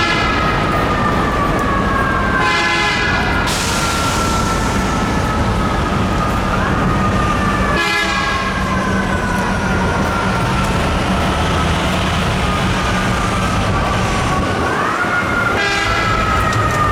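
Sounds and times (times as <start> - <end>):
fire truck siren wailing: 0.0 - 16.9
truck engine: 0.0 - 16.9
horn blast: 2.4 - 3.8, 7.8 - 8.6, 15.6 - 16.3.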